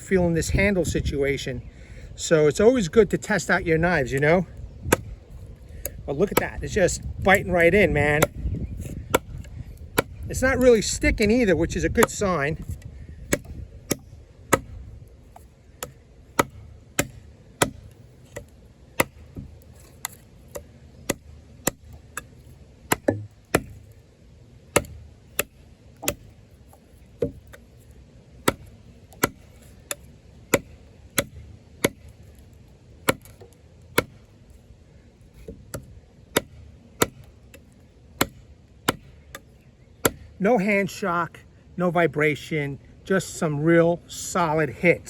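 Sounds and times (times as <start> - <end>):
knife chopping into wood: 4.1 - 5.2, 5.8 - 24.0, 24.7 - 27.6, 28.4 - 34.3, 35.4 - 40.3.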